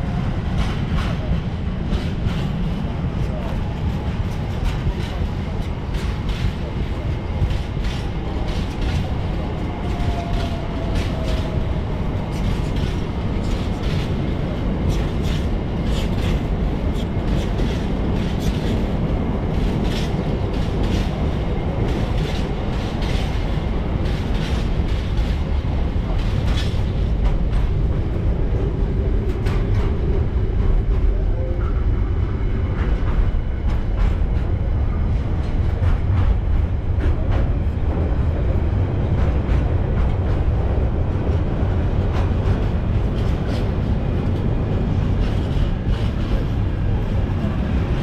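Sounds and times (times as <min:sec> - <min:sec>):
freight train rumble: 0:00.0 - 0:48.0
wheels clicking over rail joints: 0:04.2 - 0:27.9.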